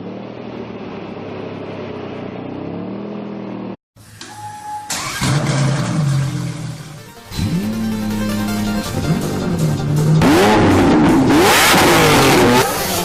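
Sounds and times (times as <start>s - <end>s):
car engine revving: 4.9s - 13.0s
loud music: 6.9s - 13.0s.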